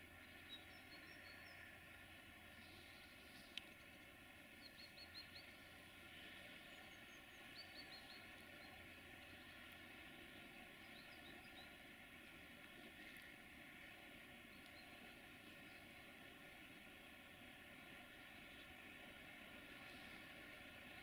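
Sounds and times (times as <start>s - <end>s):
faint steady background hiss: 0.0s - 21.0s
small bird chirping: 6.7s - 8.8s.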